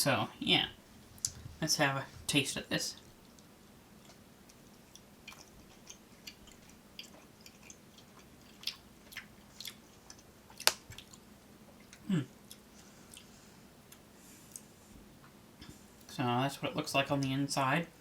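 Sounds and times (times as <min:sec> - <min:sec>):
person chewing: 0:03.0 - 0:14.8
person humming mm: 0:12.0 - 0:12.4.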